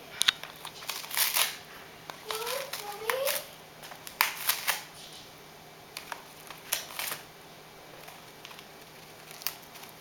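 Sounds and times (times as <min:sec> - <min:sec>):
parrot tearing newspaper: 0:00.7 - 0:05.0, 0:06.0 - 0:07.3, 0:07.9 - 0:10.0.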